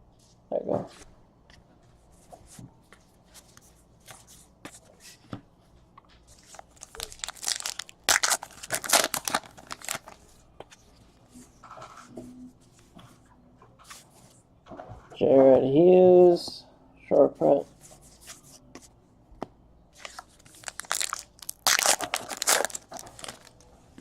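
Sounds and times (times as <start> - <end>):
wrapper tearing and crinkling: 6.5 - 10.2, 20.0 - 23.6.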